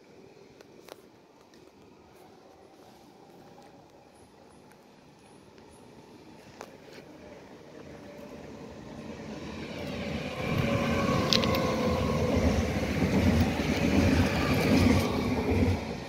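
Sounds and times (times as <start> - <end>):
train wheels rumbling on rails: 3.6 - 16.0.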